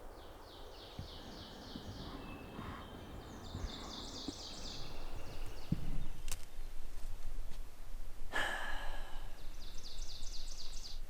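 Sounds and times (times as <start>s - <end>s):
songbird singing high notes: 0.0s - 5.8s
low wind-like rumble: 0.0s - 11.0s
soft thumps: 1.0s - 6.1s.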